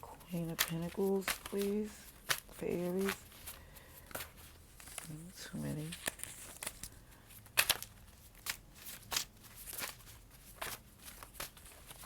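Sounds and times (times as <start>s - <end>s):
cards being shuffled: 0.2s - 12.0s.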